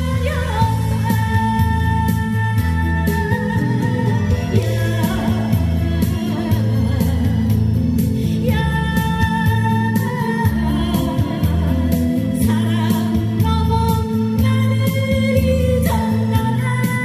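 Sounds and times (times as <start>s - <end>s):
instrumental backing with bass: 0.0s - 17.0s.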